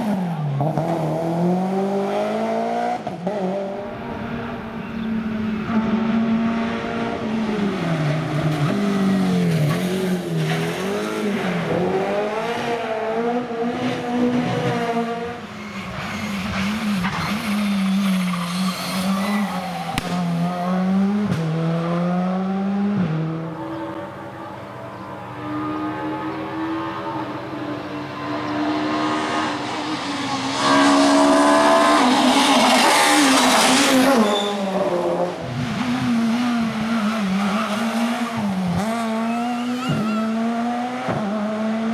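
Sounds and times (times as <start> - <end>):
rally car engines revving: 0.0 - 41.9
tyres squealing: 15.4 - 20.7, 36.9 - 40.5.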